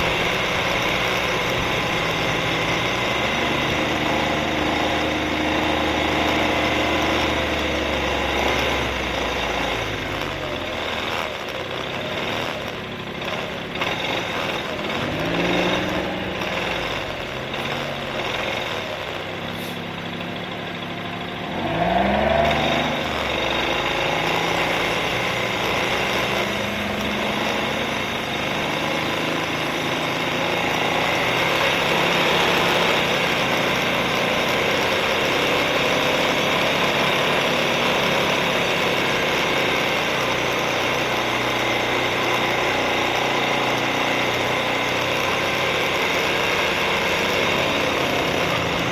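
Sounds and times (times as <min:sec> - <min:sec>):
quad bike engine revving: 0:00.0 - 0:48.9
rushing road noise: 0:00.0 - 0:48.9.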